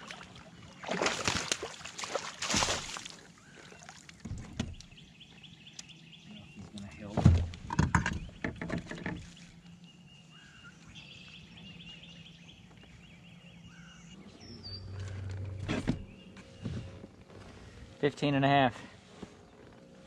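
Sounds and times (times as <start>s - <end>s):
birds chirping quietly: 0.0s - 1.0s, 3.1s - 20.0s
low rumble: 13.0s - 20.0s.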